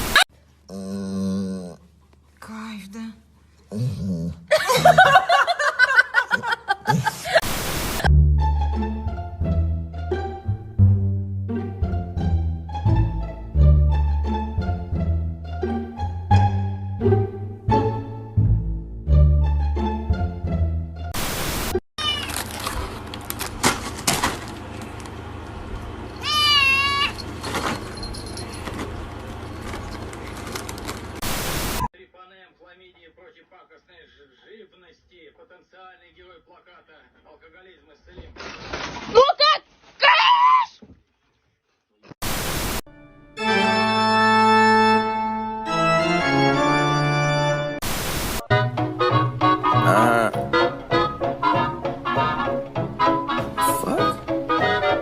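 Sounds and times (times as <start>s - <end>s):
burst of static: 7.4s - 8.1s, 21.2s - 21.8s, 31.2s - 31.9s, 42.2s - 42.8s, 47.8s - 48.5s
cat meowing: 22.0s - 22.4s, 26.2s - 27.2s
organ chords: 42.9s - 47.8s.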